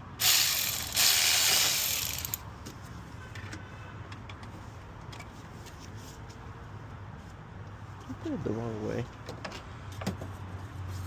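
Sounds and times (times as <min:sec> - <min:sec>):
pneumatic ratchet running: 0:00.2 - 0:02.4.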